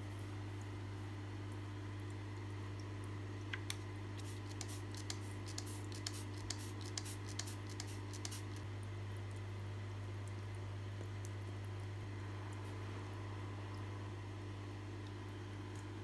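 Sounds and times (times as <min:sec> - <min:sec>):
steady low hum: 0:00.0 - 0:16.0
light clicks and scratches: 0:03.6 - 0:08.7.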